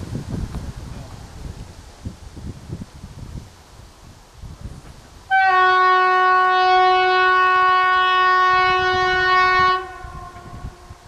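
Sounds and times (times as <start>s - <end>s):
train horn long blast: 5.3s - 11.0s.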